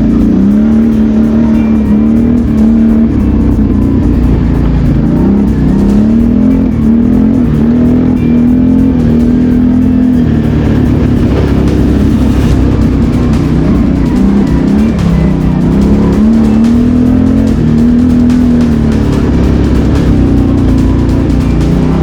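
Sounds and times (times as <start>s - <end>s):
quad bike engine revving: 0.0s - 22.0s.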